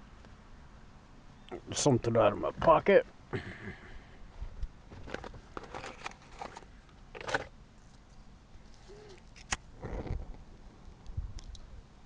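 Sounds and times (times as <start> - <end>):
rustling handling noise: 4.3 - 9.6.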